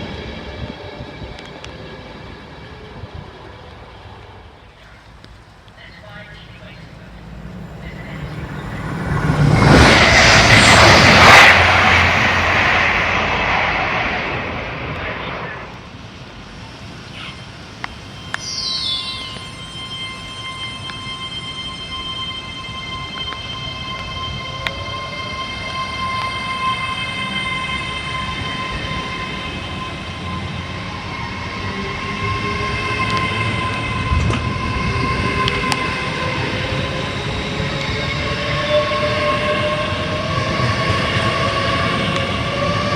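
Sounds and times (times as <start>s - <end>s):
train passing at speed: 0.0s - 42.9s
faint rising tone: 6.4s - 15.8s, 17.3s - 23.0s.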